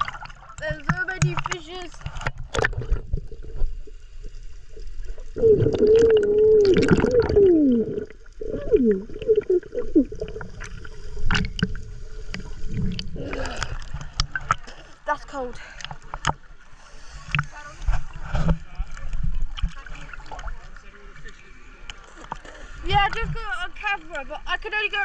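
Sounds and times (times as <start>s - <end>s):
water sloshing and gurgling: 0.0s - 25.0s
muffled wavering pitched sound: 5.4s - 10.5s.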